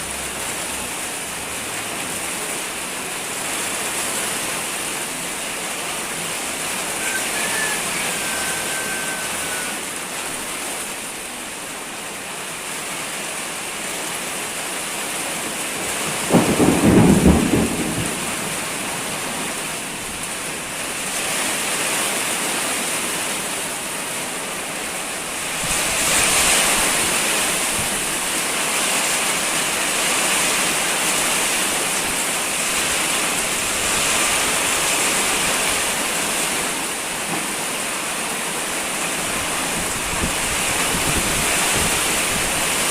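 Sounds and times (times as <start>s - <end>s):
heavy rain pouring: 0.0s - 42.9s
thunder crack: 16.1s - 19.6s.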